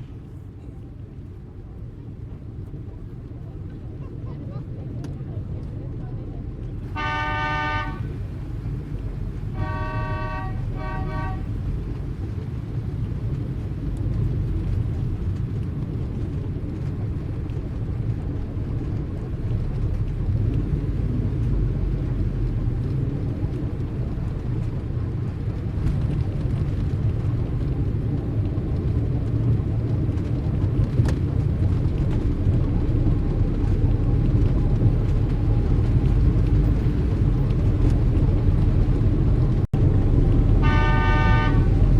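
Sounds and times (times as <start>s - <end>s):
low rumble of engines: 0.0s - 41.9s
car horn toots: 6.9s - 8.2s, 9.5s - 11.6s, 40.6s - 41.9s.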